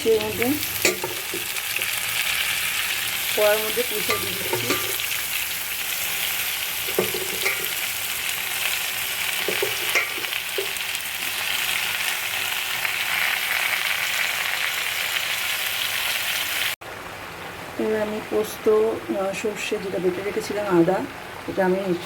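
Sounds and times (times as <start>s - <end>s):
vegetables sizzling in oil: 0.0s - 16.8s
spoon scraping and knocking pan: 0.8s - 2.0s, 3.7s - 5.2s, 6.8s - 7.9s, 9.4s - 10.8s.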